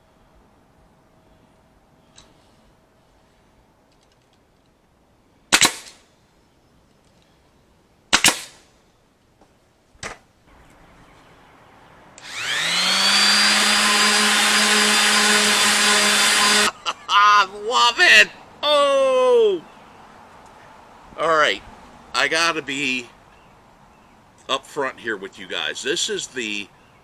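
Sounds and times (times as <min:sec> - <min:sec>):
sharp bangs: 0:08.1 - 0:08.7
power tool motor spinning: 0:12.2 - 0:16.7.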